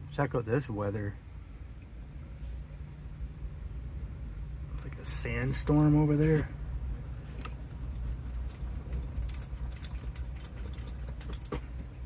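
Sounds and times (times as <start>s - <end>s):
light clicks and jingles: 5.4s - 6.6s, 7.4s - 12.0s.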